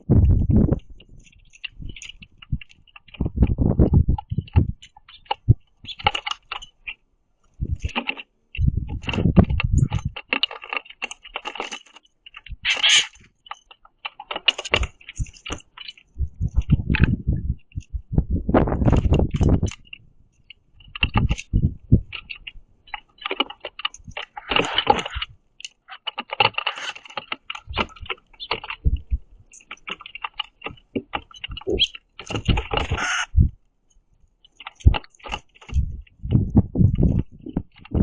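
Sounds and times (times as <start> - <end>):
birds pecking seeds: 0.0 - 38.0
low thumps: 35.8 - 38.0.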